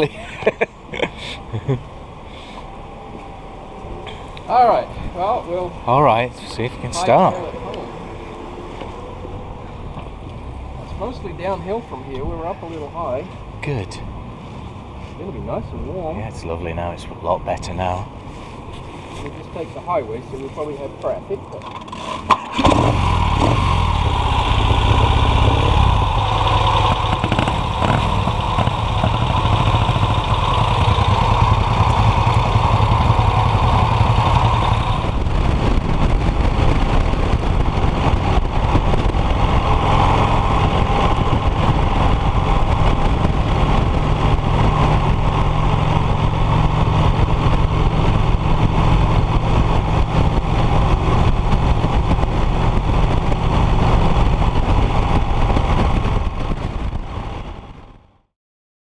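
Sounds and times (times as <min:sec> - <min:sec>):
motorcycle engine running: 0:21.7 - 0:58.1.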